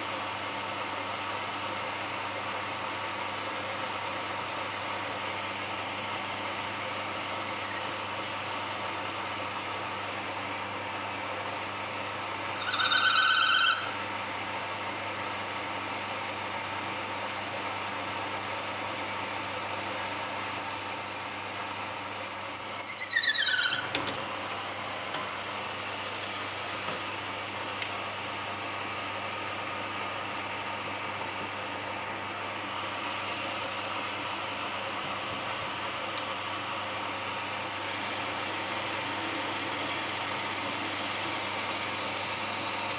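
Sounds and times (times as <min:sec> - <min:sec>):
lathe running: 0:11.7 - 0:14.0, 0:14.9 - 0:23.8, 0:37.0 - 0:42.9
short high squeal: 0:12.6 - 0:13.9, 0:17.9 - 0:23.9.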